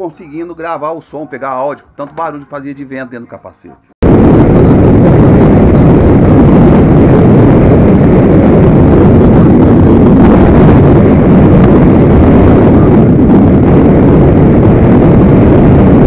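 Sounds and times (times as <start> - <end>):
wind rush on microphone: 4.0 - 16.0.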